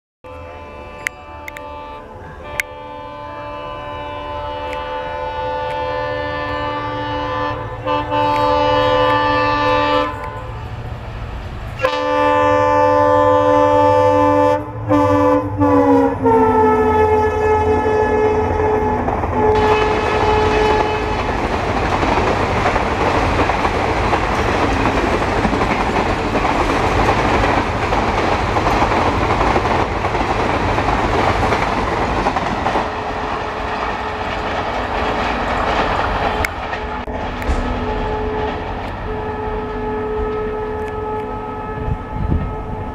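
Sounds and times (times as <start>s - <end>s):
locomotive horn blasts: 0.3s - 10.8s, 11.8s - 21.5s, 35.2s - 42.9s
train coaches rushing by: 0.3s - 42.9s
wheels clattering on rails: 18.6s - 40.4s.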